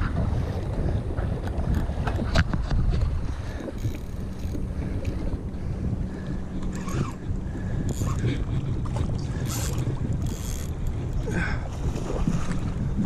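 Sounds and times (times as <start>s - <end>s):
water moving around kayak: 0.0s - 13.0s
wind buffeting microphone: 0.0s - 13.0s.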